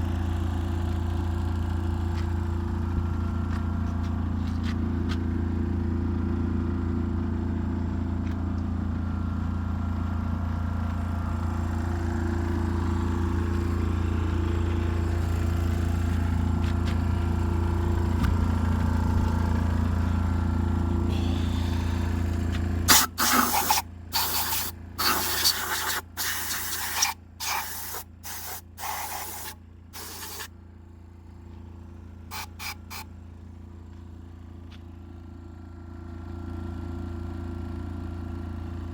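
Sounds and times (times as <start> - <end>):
engine running: 0.0 - 38.9
hissing spray blasts: 22.9 - 30.5, 32.3 - 33.0.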